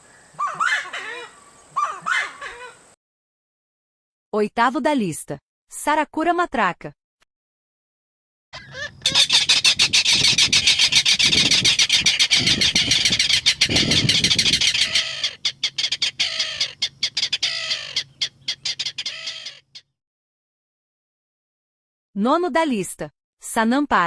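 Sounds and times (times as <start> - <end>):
rail harsh clattering calls: 0.4 - 2.8, 8.6 - 19.8.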